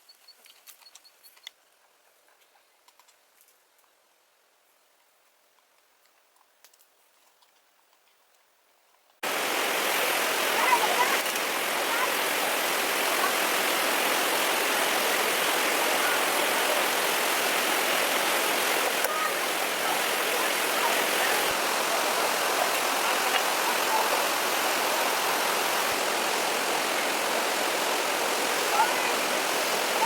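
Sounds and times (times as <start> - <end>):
running water rushing: 9.2 - 30.0.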